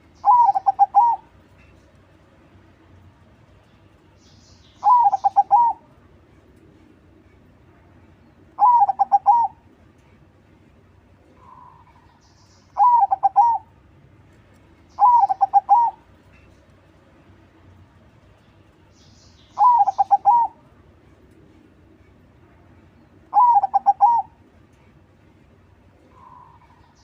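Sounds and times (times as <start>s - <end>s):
dove cooing: 0.0s - 1.3s, 4.8s - 5.9s, 8.6s - 9.6s, 12.8s - 13.7s, 15.0s - 16.5s, 19.6s - 20.6s, 23.3s - 24.4s, 26.1s - 26.9s.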